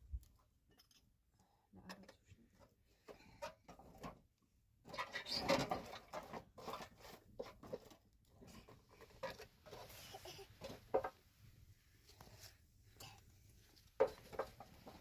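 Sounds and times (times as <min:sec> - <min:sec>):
objects being handled: 0:04.8 - 0:15.0.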